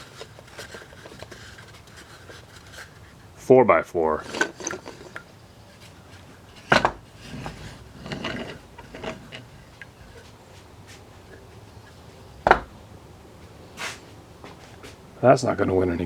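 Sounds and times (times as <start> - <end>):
wood rubbing and scraping: 0.0 - 16.0
wooden knock: 12.4 - 12.8.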